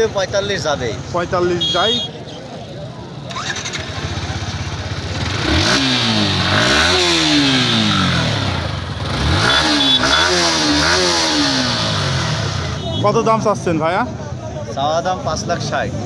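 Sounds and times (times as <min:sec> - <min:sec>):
motorcycle engine revving: 0:03.2 - 0:13.0.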